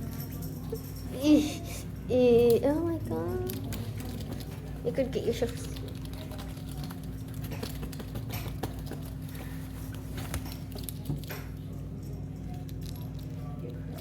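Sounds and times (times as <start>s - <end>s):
steady low hum: 0.0s - 14.0s
faint clicks and taps: 5.4s - 11.6s.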